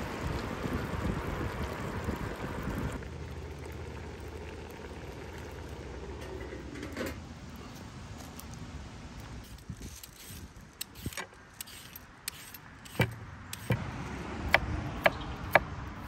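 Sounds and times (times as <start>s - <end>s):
pot bubbling: 0.0s - 7.7s.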